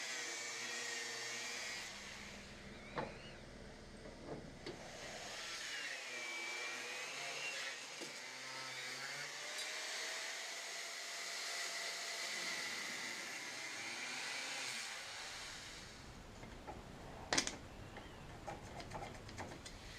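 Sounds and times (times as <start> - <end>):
power tool motor whining: 0.0 - 3.5.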